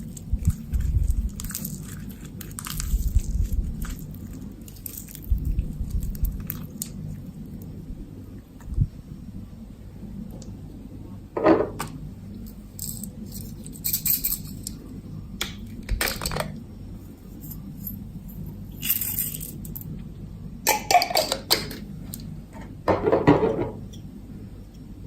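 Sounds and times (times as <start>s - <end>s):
slime clicking and crackling: 0.0s - 7.7s.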